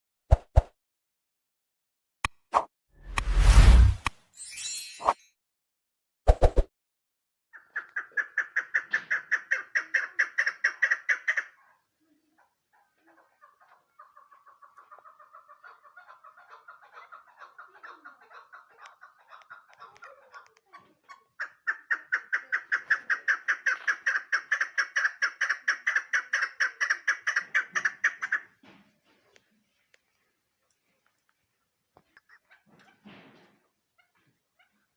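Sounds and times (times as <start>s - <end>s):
partridge clucking call: 7.6s - 11.6s, 12.8s - 28.6s.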